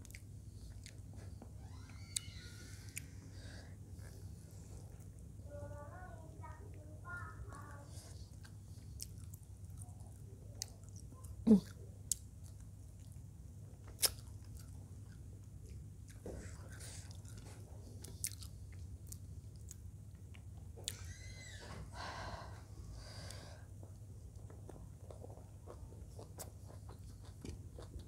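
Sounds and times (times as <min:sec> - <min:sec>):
wet chewing with mouth clicks: 0:00.0 - 0:01.4, 0:13.8 - 0:21.0, 0:23.8 - 0:28.0.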